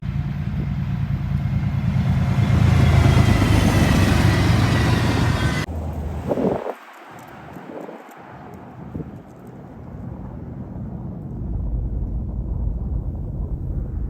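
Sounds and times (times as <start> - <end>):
diesel locomotive engine rumble: 0.0 - 6.3.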